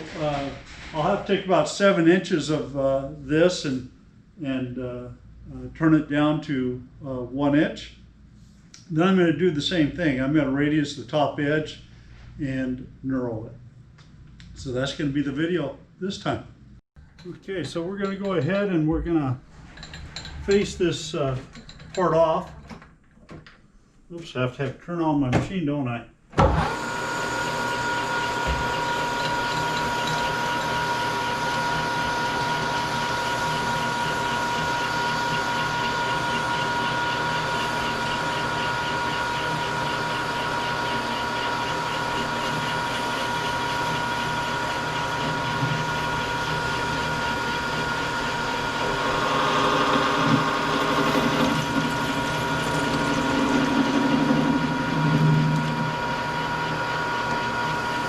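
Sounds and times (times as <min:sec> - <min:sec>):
lathe tool cutting steel: 0:26.6 - 0:58.0
metal lathe whining: 0:26.6 - 0:58.0.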